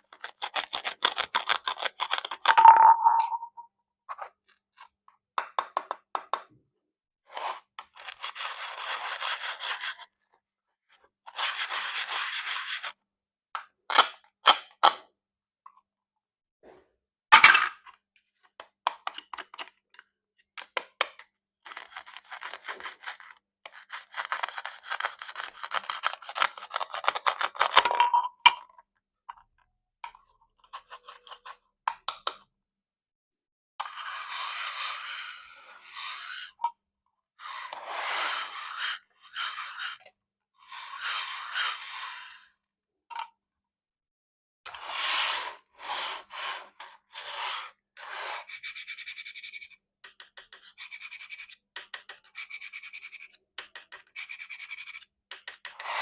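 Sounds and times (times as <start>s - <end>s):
knife scraping plastic: 0.0s - 2.7s, 7.3s - 10.2s, 21.6s - 28.2s, 30.1s - 31.7s, 33.8s - 36.7s, 48.0s - 56.0s.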